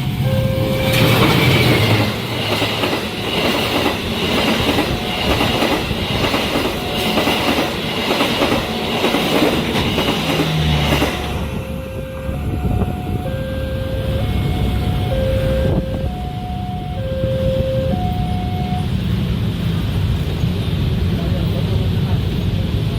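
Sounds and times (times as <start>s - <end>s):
high squeal of train wheels: 0.0s - 19.1s
level-crossing warning alarm: 0.0s - 19.2s
train wheels clattering over rails: 0.8s - 11.8s.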